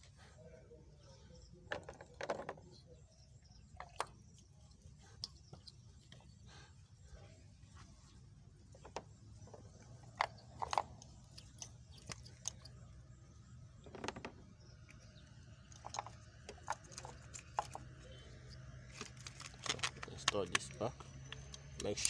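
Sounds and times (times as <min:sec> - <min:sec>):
plastic parts clicking: 0:18.8 - 0:22.0.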